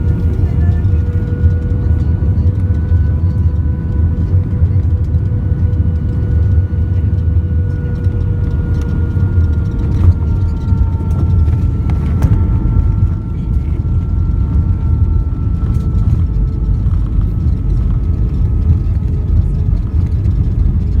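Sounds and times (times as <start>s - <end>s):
vehicle low rumble: 0.0s - 21.0s
faint whine falling in pitch: 5.4s - 20.8s.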